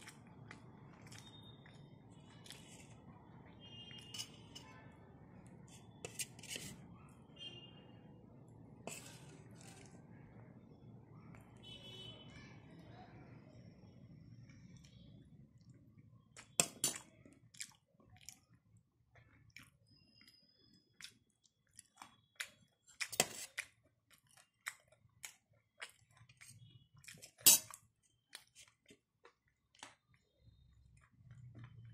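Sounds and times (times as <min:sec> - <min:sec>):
person chewing: 0:00.0 - 0:04.6, 0:08.7 - 0:10.1, 0:16.4 - 0:30.3.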